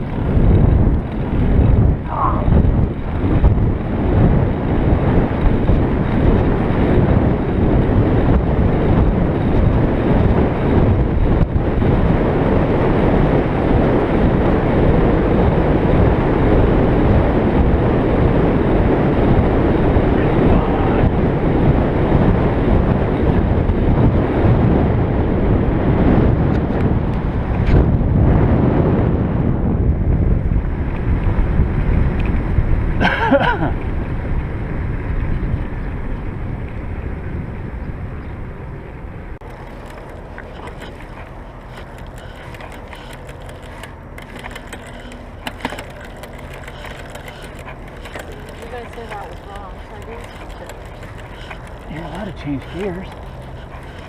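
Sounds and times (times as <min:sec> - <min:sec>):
bike clicks and rattles: 0:00.0 - 0:13.2, 0:39.4 - 0:54.0
wind rushing over microphone: 0:00.0 - 0:54.0.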